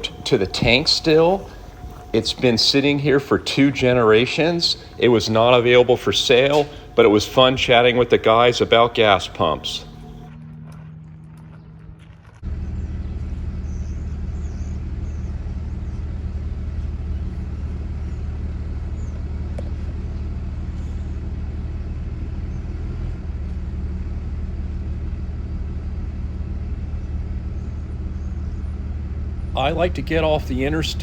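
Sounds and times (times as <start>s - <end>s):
car engine drone: 0.0s - 31.0s
road noise: 0.0s - 31.0s.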